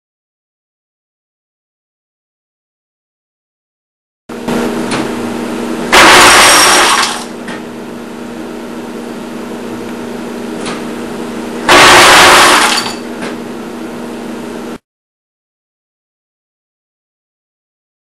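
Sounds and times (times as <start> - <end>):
motor hum: 4.3 - 14.8.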